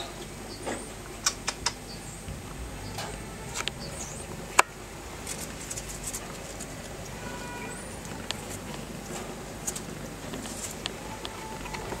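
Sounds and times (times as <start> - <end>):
small birds chirping: 0.0 - 12.0
sharp clicks: 1.1 - 7.2.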